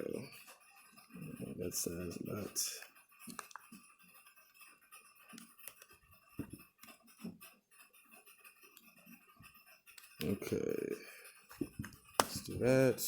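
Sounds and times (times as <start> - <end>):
laptop parts clicking: 2.8 - 3.8, 5.2 - 7.4, 11.5 - 12.7.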